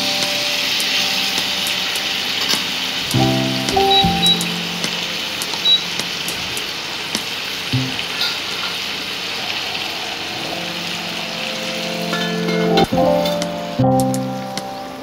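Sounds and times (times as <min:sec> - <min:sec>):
background music with held notes: 0:00.0 - 0:06.2, 0:10.4 - 0:15.0.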